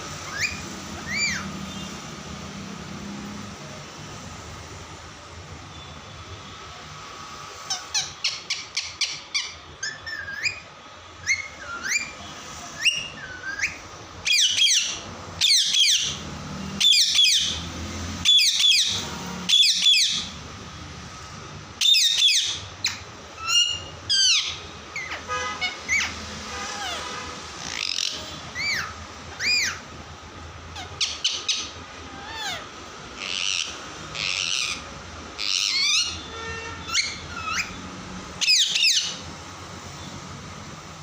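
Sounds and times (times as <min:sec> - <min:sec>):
parrot calling: 0:00.1 - 0:02.4, 0:07.6 - 0:20.5, 0:21.8 - 0:30.0, 0:30.7 - 0:39.3.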